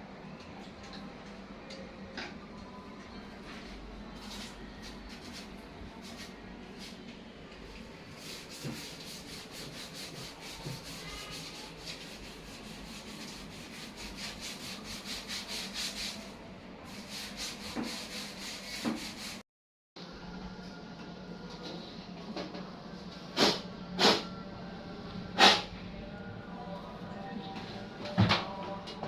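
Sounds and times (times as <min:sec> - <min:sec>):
scrubbing a hard surface: 0:08.1 - 0:16.3, 0:16.9 - 0:19.4.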